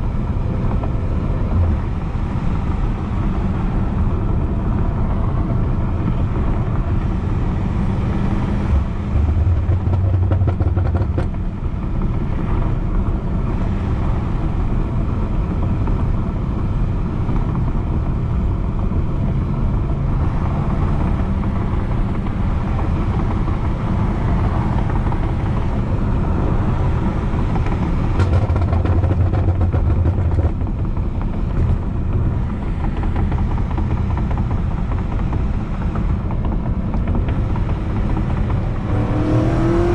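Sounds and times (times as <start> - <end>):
car exhaust drone while cruising: 0.0 - 39.9.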